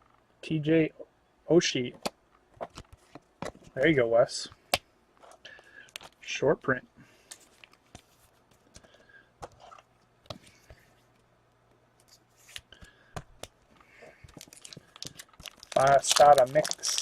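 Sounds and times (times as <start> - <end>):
trading cards being handled: 12.0 - 17.0.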